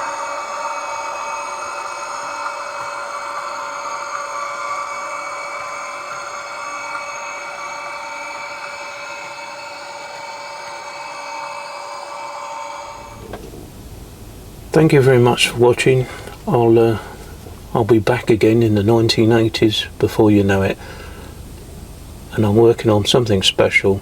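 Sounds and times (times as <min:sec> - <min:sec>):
model train motor whine: 0:00.0 - 0:14.3.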